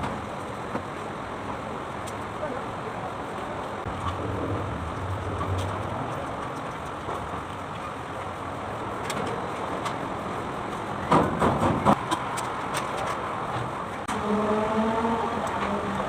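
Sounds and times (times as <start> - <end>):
diesel engine running: 1.4 - 11.1
sharp engine knocks: 11.0 - 12.2.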